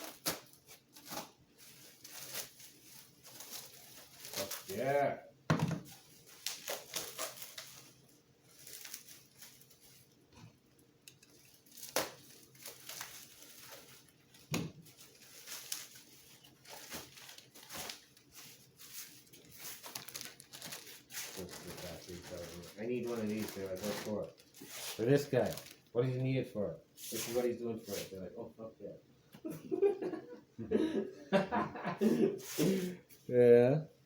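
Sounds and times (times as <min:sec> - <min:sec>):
plastic packaging crinkling: 0:00.0 - 0:04.9, 0:05.9 - 0:25.9.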